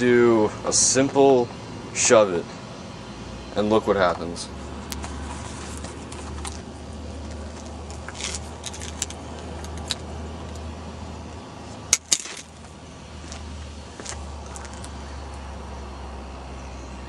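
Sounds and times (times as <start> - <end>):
steady low hum: 0.0 - 17.0
metal clinks and rattles: 8.0 - 10.0, 11.9 - 12.6.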